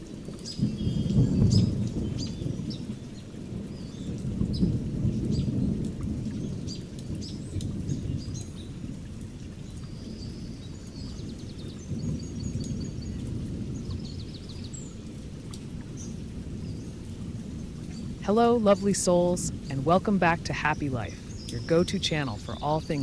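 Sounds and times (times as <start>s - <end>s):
birds chirping: 9.5s - 15.0s, 15.9s - 23.0s
low uneven rumble: 12.0s - 23.0s.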